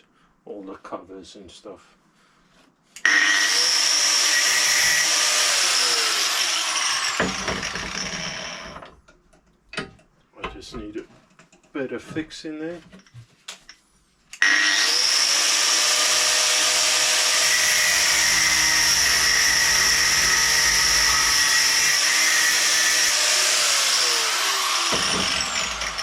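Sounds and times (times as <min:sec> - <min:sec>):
angle grinder cutting bolt: 0:03.0 - 0:08.9, 0:14.4 - 0:26.0.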